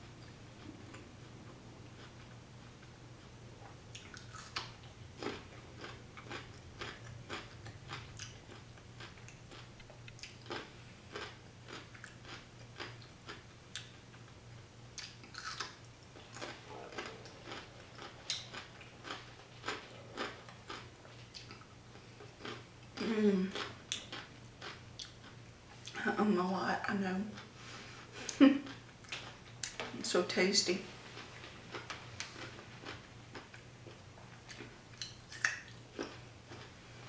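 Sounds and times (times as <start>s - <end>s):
steady low hum: 0.0s - 37.0s
crisp crunches of chewing: 4.0s - 13.9s, 15.0s - 25.4s.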